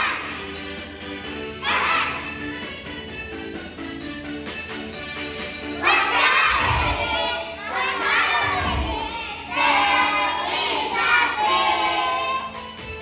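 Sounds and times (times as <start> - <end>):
children shouting in unison: 0.0 - 0.4, 1.5 - 2.4, 5.8 - 12.4
background music: 0.0 - 13.0.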